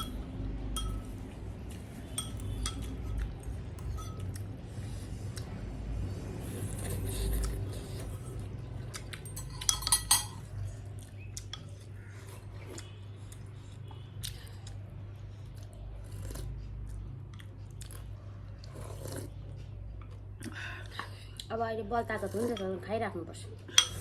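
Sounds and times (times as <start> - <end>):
utensils clinking against a dish: 0.0 - 4.6, 6.7 - 10.6, 23.7 - 24.0
low steady hum: 0.0 - 24.0.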